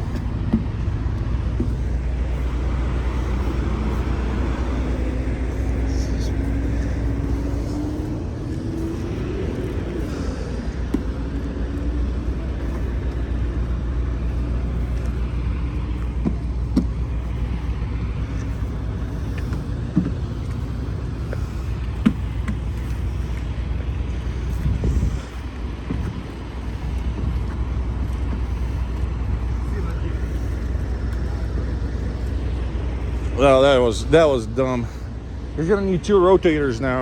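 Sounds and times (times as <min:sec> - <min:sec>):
truck diesel engine rumbling: 0:00.0 - 0:37.0.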